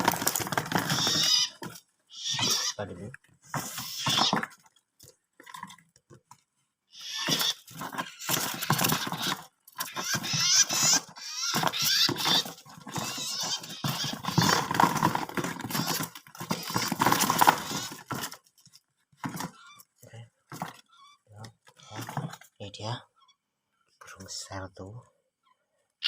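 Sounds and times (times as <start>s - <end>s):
scraping and rustling: 0.0s - 22.6s
birds fluttering in a box: 0.0s - 23.0s
high bird chirps: 0.9s - 2.8s.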